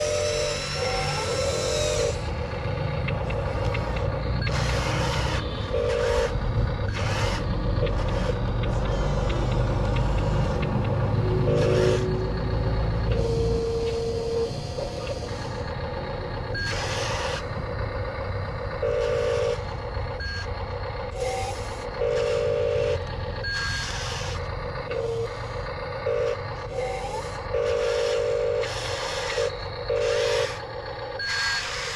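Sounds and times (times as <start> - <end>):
toy motor hum: 0.0 - 2.4, 3.1 - 12.4, 13.0 - 17.6, 21.1 - 31.9.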